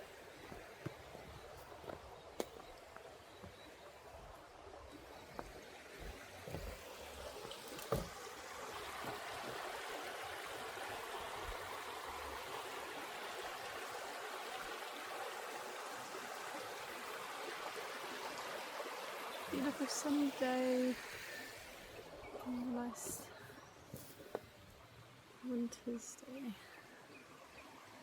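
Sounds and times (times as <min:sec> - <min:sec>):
small stream trickling: 0:00.0 - 0:28.0.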